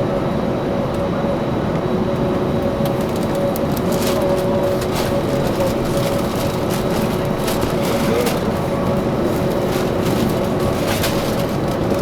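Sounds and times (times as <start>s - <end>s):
loud engine humming: 2.2s - 12.0s.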